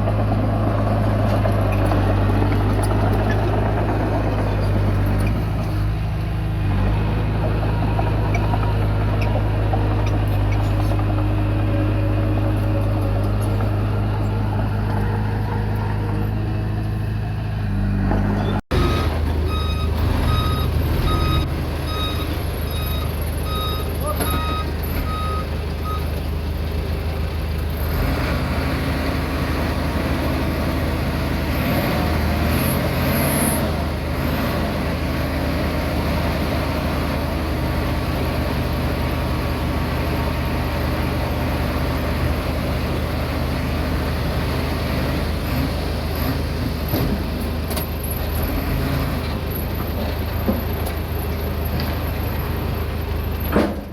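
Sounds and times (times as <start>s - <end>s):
bulldozer diesel engine running: 0.0s - 53.9s
reversing alarm beeping: 18.7s - 26.1s.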